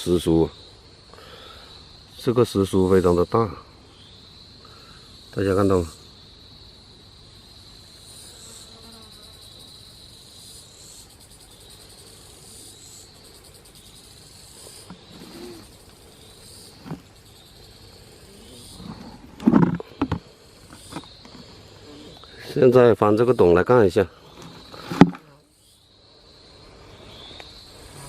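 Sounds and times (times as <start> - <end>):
insects trilling buzz: 0.0 - 28.0
pulsing insect calls: 0.0 - 28.0
handling noises: 16.8 - 17.2, 18.8 - 21.5, 24.3 - 25.3.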